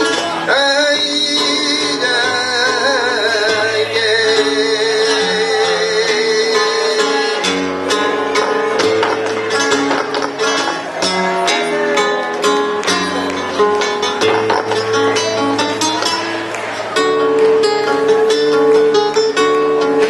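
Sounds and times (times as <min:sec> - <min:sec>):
latin band with guitar and bass: 0:00.0 - 0:20.0
sharp strummed strokes: 0:06.5 - 0:20.0.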